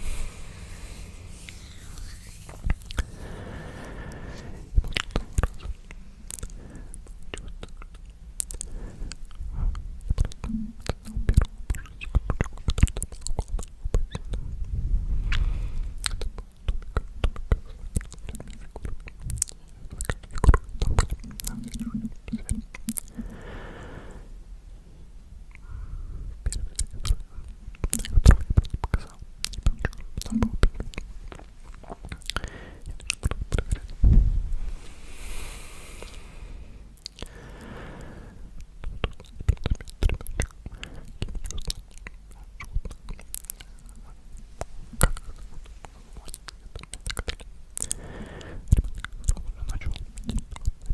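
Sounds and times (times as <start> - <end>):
breathy puffs into microphone: 0.0 - 5.9
breathy hiss: 0.0 - 7.2, 23.1 - 24.4, 32.4 - 33.0, 33.9 - 38.6, 47.8 - 48.7
close whispering: 0.0 - 7.7, 47.8 - 50.7
wet mouth clicks and smacks: 10.0 - 14.4, 16.0 - 23.1, 26.5 - 34.0, 38.6 - 50.9
low thump: 34.0 - 34.6.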